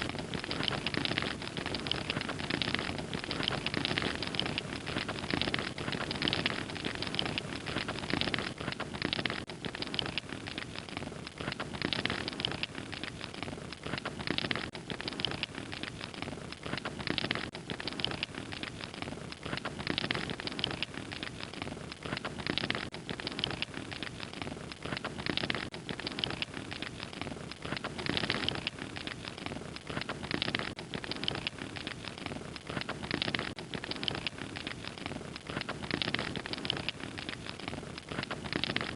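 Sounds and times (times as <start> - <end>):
fire crackling: 0.0 - 38.9.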